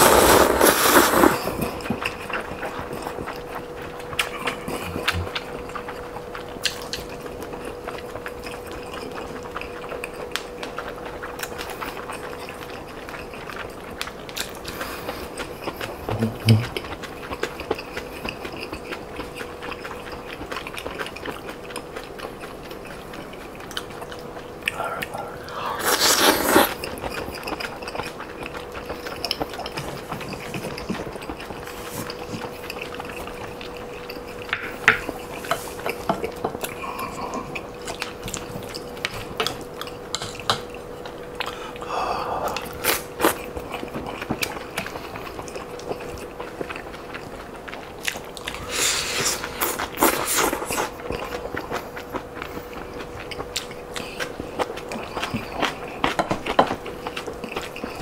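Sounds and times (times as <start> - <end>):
faint steady hum: 0.0 - 58.0
man chewing and mouth smacking: 0.1 - 58.0.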